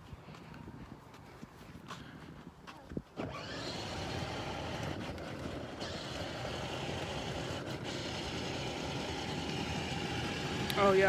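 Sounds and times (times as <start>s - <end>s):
toy truck rolling on road: 3.2s - 11.0s.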